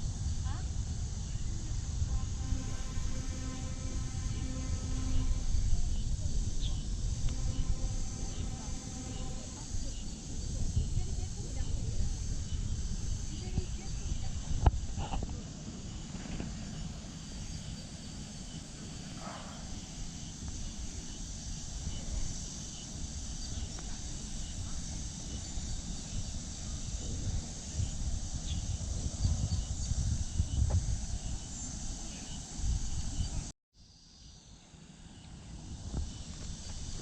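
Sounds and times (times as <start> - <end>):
low rumble: 0.0 - 17.1
insects buzzing: 0.0 - 37.0.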